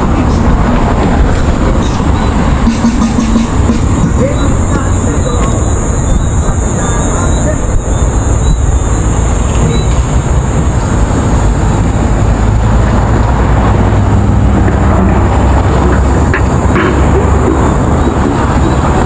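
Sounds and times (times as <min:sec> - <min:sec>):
high-pitched whine: 0:00.0 - 0:13.9
vehicle and road rumble: 0:00.0 - 0:19.0.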